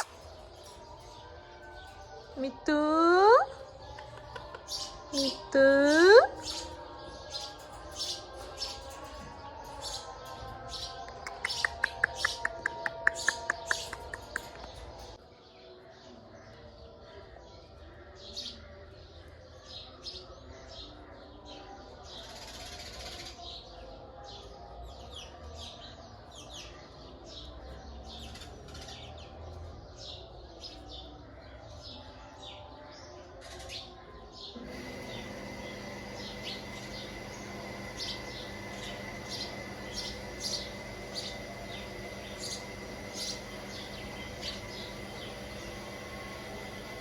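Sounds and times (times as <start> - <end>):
steady hum: 34.6 - 47.0.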